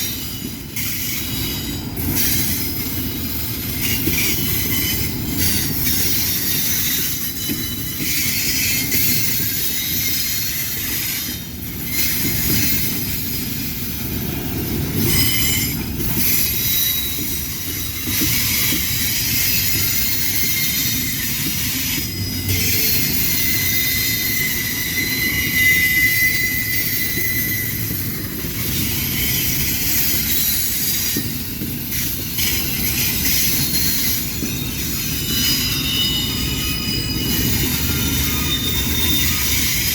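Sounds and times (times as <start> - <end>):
freight train wheels rumbling: 0.0 - 39.9
high-pitched wheel squeals: 15.0 - 39.9.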